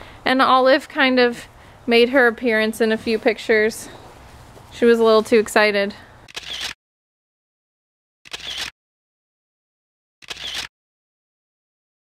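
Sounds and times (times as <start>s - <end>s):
camera shutter click: 6.3s - 6.8s, 8.3s - 8.7s, 10.2s - 10.7s.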